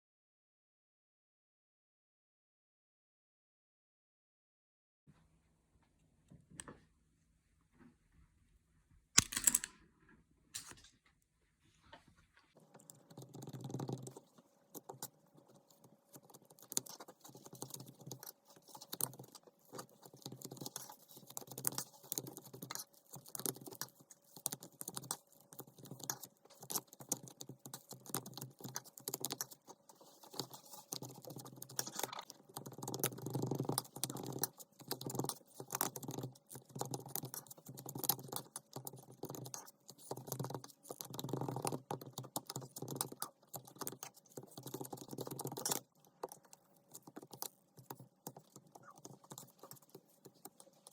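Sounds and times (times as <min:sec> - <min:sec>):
ruler mixing sticky dough: 0:12.2 - 0:50.9.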